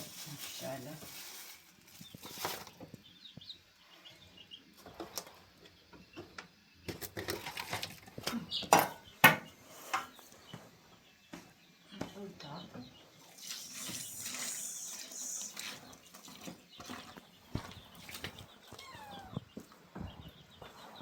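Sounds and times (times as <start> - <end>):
faint high chirps: 18.6 - 19.7.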